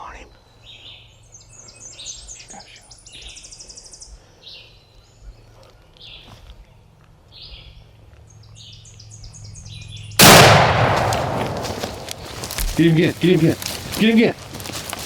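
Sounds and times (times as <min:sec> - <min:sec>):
small birds chirping: 0:00.0 - 0:10.6, 0:11.2 - 0:15.0
shotgun blast: 0:10.2 - 0:12.2.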